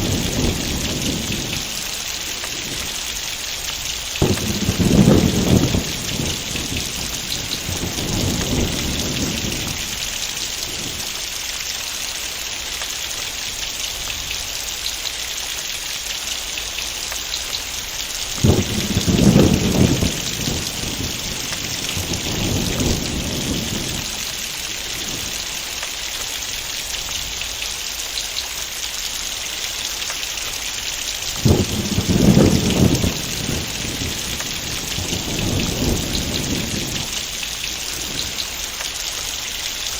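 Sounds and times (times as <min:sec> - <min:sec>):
thunder rolling: 0:00.0 - 0:03.1, 0:04.0 - 0:11.1, 0:18.3 - 0:25.8, 0:31.3 - 0:39.5
heavy rain hissing: 0:00.0 - 0:39.9.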